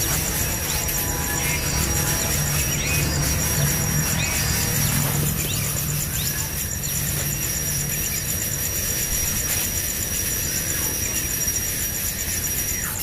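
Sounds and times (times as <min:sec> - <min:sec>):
nestlings begging calls: 0:00.0 - 0:08.6.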